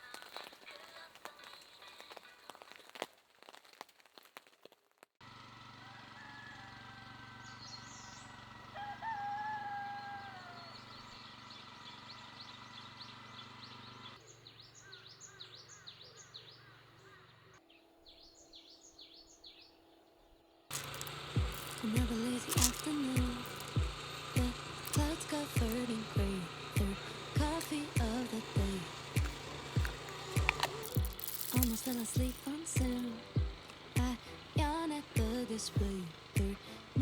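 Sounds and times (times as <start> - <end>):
birds chirping: 0.0 - 3.0, 5.6 - 37.0
dense crackling patter: 0.0 - 5.1, 20.7 - 37.0
gliding calls: 20.7 - 37.0
steady low hum: 20.7 - 37.0.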